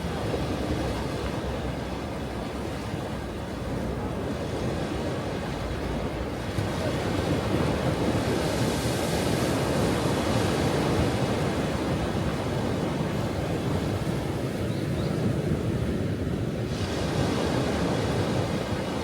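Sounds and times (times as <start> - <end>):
ocean waves breaking: 0.0 - 19.0.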